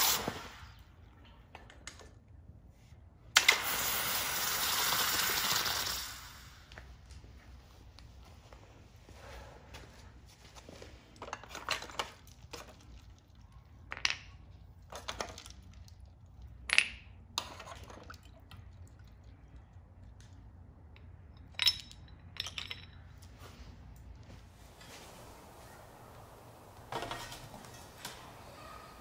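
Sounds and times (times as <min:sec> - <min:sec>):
metal ingots clinking and knocking: 0:21.4 - 0:23.2, 0:25.2 - 0:29.0.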